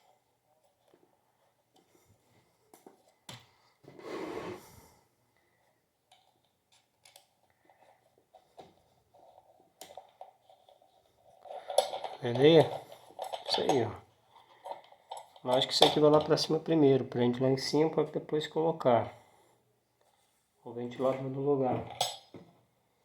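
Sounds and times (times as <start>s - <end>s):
rubbing scrape: 3.9s - 4.8s.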